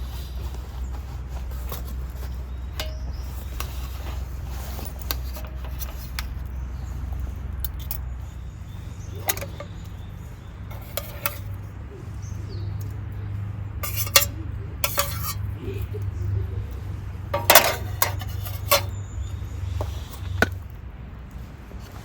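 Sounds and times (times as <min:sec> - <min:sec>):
utensil clinking on metal cookware: 0:09.2 - 0:09.7, 0:10.7 - 0:11.5, 0:13.8 - 0:15.4, 0:17.3 - 0:19.0.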